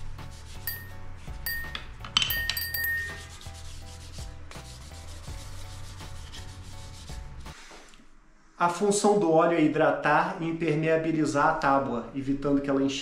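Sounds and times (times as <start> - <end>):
paper towel rustling wipe: 3.2 - 8.0.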